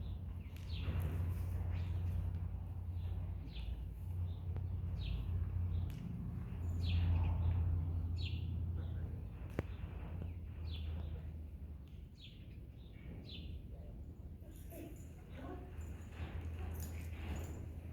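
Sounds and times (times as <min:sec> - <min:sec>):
steady low rumble: 0:00.0 - 0:12.3.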